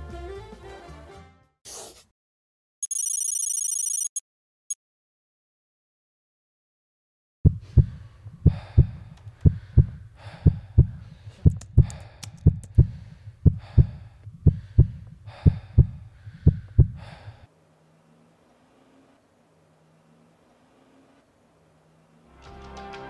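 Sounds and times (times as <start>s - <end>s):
heartbeat double thump: 7.4s - 17.1s
breathy rushes: 7.6s - 17.6s
faint low hum: 7.6s - 22.3s
sharp clicks: 11.5s - 12.9s.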